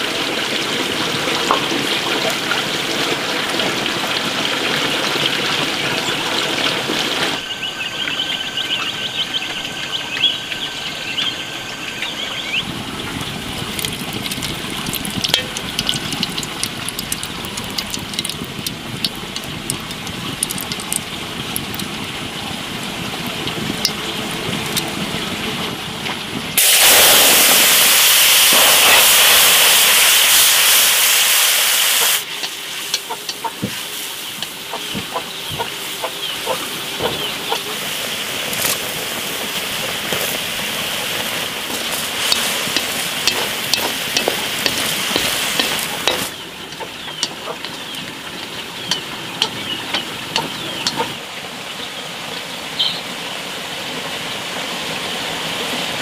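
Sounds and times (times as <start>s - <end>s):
loud harsh sizzle: 0.0s - 51.5s
oil sizzling and popping in wok: 0.0s - 51.8s
utensil clicks in pan: 13.8s - 21.0s, 42.3s - 51.1s.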